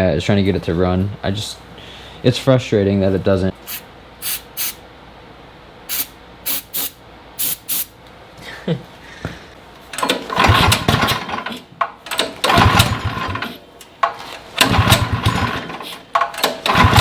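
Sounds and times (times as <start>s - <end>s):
small engine pull-starting: 10.0s - 13.6s, 14.5s - 17.0s.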